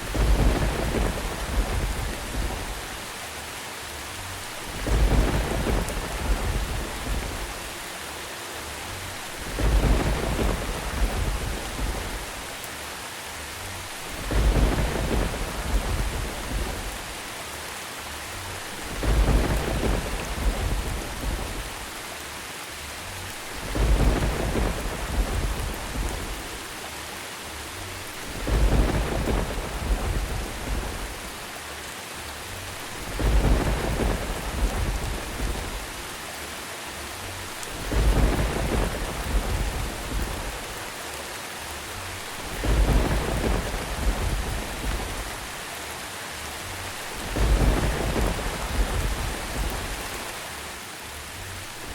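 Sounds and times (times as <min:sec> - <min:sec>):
thunder rumbling: 0:00.0 - 0:03.2, 0:04.2 - 0:07.9, 0:09.0 - 0:12.7, 0:13.8 - 0:17.3, 0:18.6 - 0:22.0, 0:23.3 - 0:26.8, 0:28.0 - 0:31.6, 0:32.7 - 0:36.2, 0:37.4 - 0:41.0, 0:42.1 - 0:45.8, 0:46.8 - 0:50.4
steady rain: 0:00.0 - 0:51.9.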